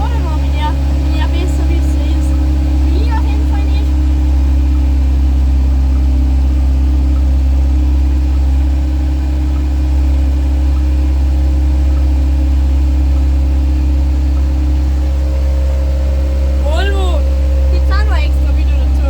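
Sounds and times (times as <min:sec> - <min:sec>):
vehicle engine droning: 0:00.0 - 0:19.0.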